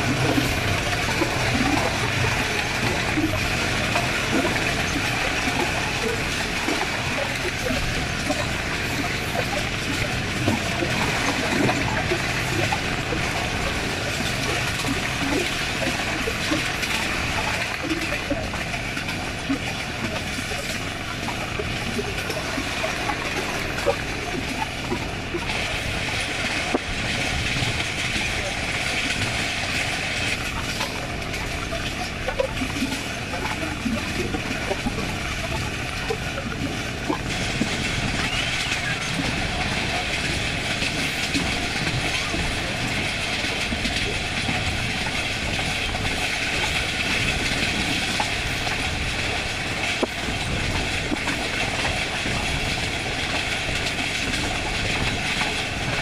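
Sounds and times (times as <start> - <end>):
wheel and rail noise: 0.0 - 56.0
squeaks and clanks: 38.0 - 39.3.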